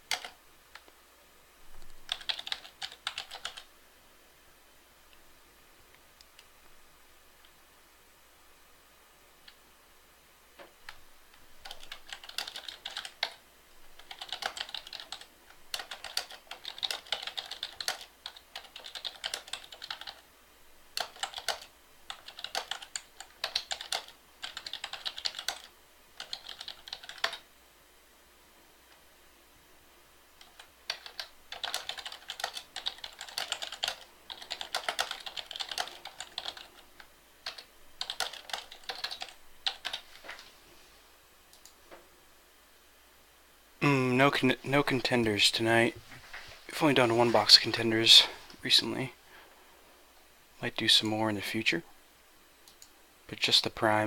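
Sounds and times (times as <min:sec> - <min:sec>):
typing on computer keyboard: 0:00.0 - 0:00.9, 0:01.9 - 0:03.7, 0:11.6 - 0:13.4, 0:14.0 - 0:20.2, 0:21.0 - 0:27.4, 0:30.4 - 0:40.1.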